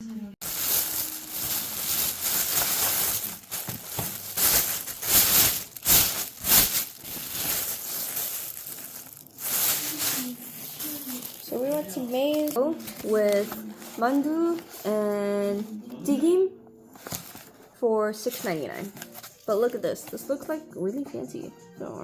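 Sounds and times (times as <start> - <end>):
plastic packaging crinkling: 0.4 - 16.0, 17.0 - 20.2.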